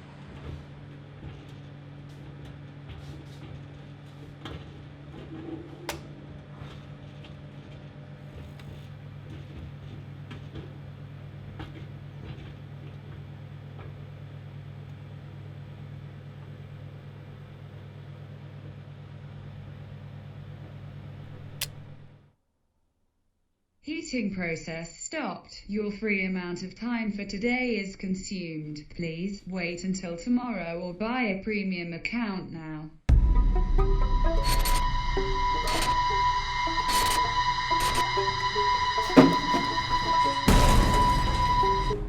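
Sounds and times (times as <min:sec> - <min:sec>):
microwave oven humming: 0:00.0 - 0:22.3, 0:34.9 - 0:42.0
microwave clicks: 0:39.0 - 0:40.1.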